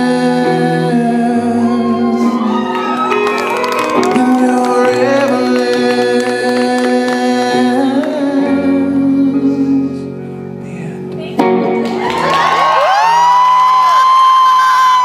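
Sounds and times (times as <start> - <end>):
man singing a long note: 0.0 - 3.1, 3.9 - 10.3
pop-rock ballad accompaniment: 0.0 - 15.0.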